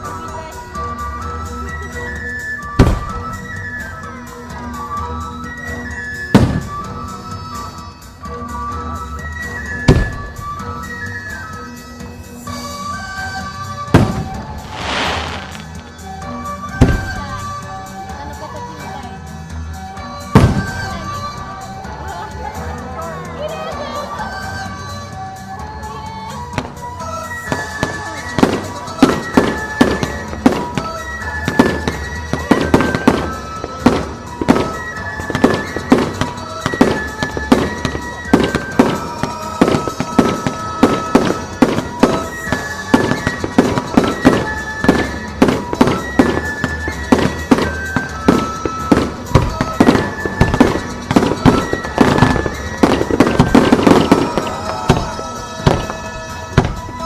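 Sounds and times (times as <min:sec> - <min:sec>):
music melody: 0:00.0 - 0:57.0
firework shells bursting: 0:02.8 - 0:03.8, 0:13.9 - 0:16.0, 0:27.5 - 0:57.0.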